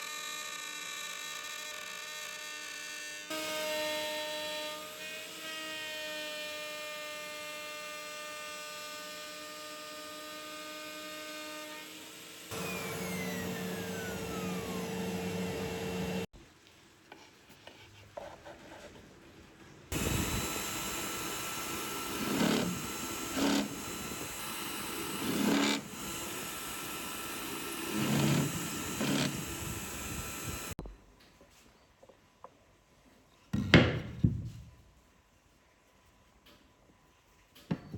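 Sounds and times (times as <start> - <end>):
power tools cutting plywood: 0.0 - 16.3, 19.9 - 30.8.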